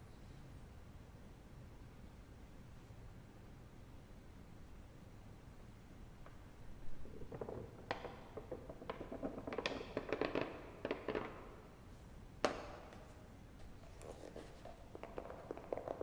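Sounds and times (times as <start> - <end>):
wood fire crackling: 7.0 - 11.9.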